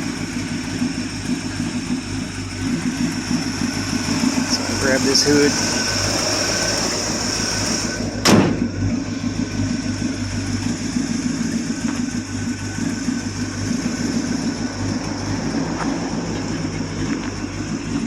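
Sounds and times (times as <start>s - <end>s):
truck hood metal clunk: 8.2s - 8.8s.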